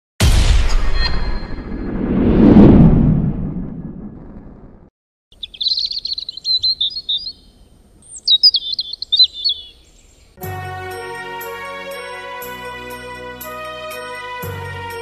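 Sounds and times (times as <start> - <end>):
deep boom: 0.2 - 4.9
songbird warbling: 5.3 - 10.4
held music chords: 10.4 - 15.0.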